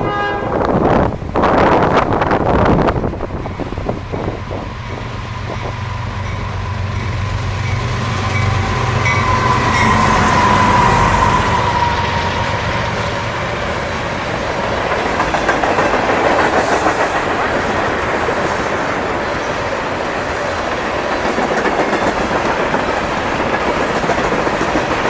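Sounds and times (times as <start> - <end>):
freight train low drone: 0.0 - 25.0
train wheels clattering over rail joints: 13.8 - 25.0.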